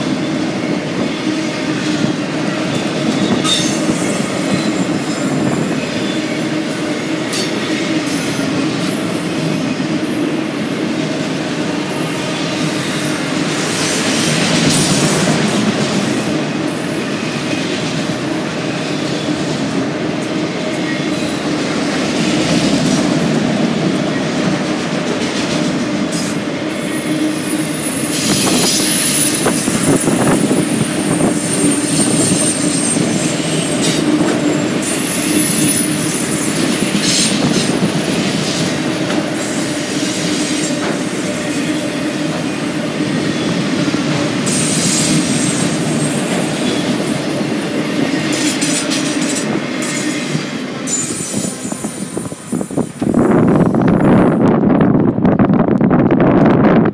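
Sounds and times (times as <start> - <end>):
freight train wheels rumbling: 0.0 - 56.9
high thin wheel squeal: 2.7 - 8.4, 27.9 - 30.3, 31.2 - 37.6.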